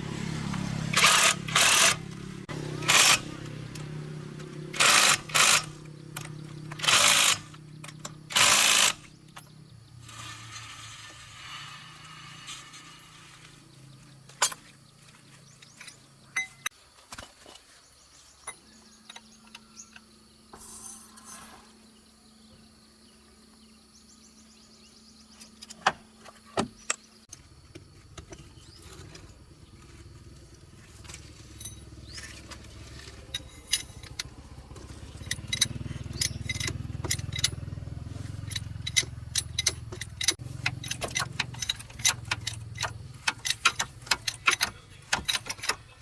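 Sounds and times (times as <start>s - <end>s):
low motor hum: 0.0s - 16.6s, 28.1s - 46.0s.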